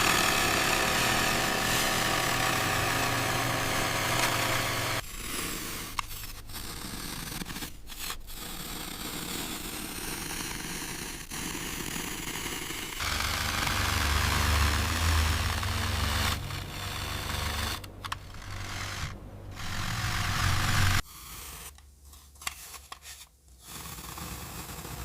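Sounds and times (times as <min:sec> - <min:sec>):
engine running: 0:00.0 - 0:05.0, 0:13.0 - 0:21.0
rough machine sound: 0:00.0 - 0:05.0, 0:13.0 - 0:21.0.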